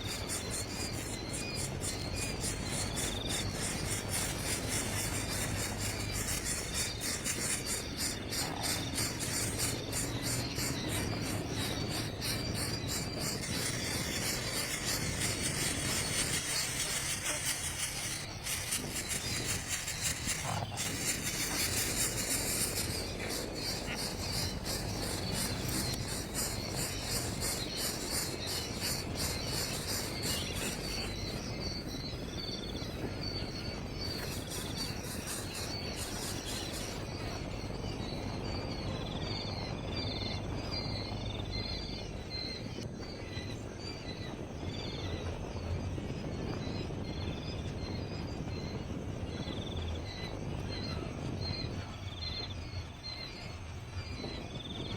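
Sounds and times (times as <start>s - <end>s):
insect pulsing trill: 0.0s - 38.2s
bird chirping: 0.0s - 45.2s
steady low rumble: 0.0s - 54.9s.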